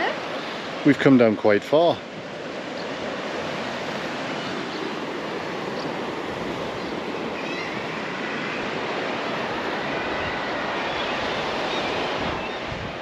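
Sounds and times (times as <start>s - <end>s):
sea surf rushing: 0.0s - 13.0s
faint seabird calls: 2.3s - 12.9s.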